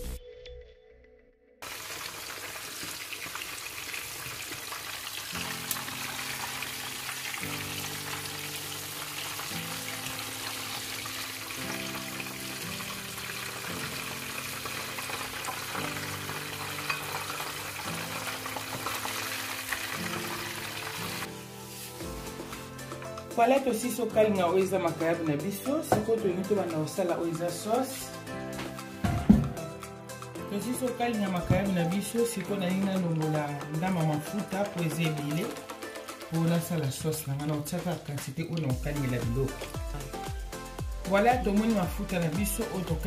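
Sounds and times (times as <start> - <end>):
background music with low chords: 0.0 - 1.4, 5.4 - 43.0
fish sizzling in hot oil: 1.6 - 23.3.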